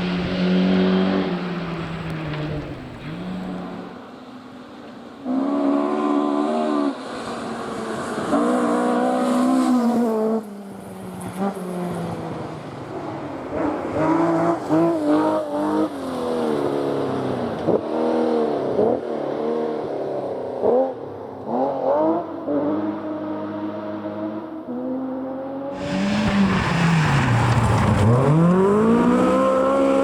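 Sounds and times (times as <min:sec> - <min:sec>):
rally car engine revving: 0:00.0 - 0:04.0, 0:20.6 - 0:30.0.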